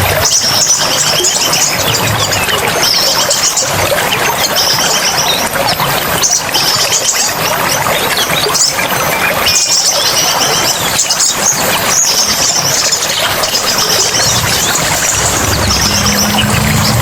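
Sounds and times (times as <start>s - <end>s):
rushing water: 0.0s - 17.0s
songbirds twittering: 0.0s - 17.0s
low steady hum: 13.8s - 17.0s.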